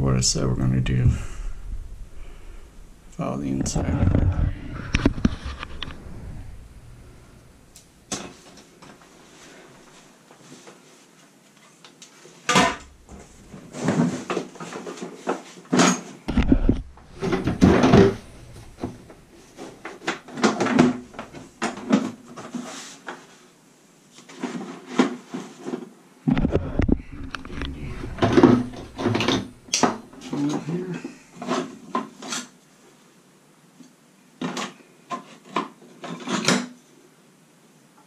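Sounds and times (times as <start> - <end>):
tools knocking and clattering: 15.7 - 22.1, 26.8 - 30.2.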